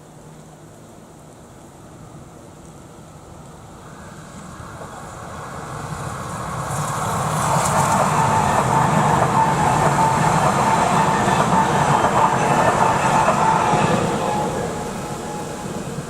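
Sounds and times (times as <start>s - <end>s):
train wheels rumbling on rail: 3.4s - 16.0s.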